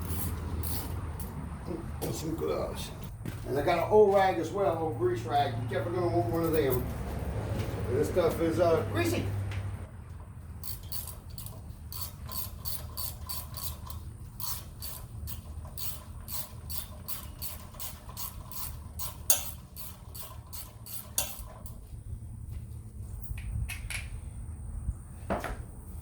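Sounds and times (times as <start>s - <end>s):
ratchet wrench clicking: 0.0s - 1.4s, 10.6s - 21.8s.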